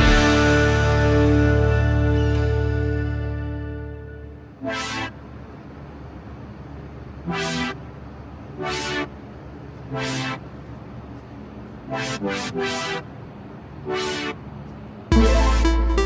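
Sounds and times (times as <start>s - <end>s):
loud electronic music: 15.1s - 16.0s.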